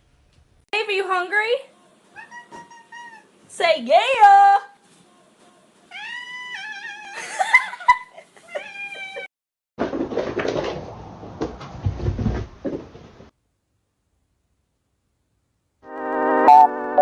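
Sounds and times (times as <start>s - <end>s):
cat meowing: 2.2s - 3.3s, 5.9s - 7.2s, 8.5s - 9.3s.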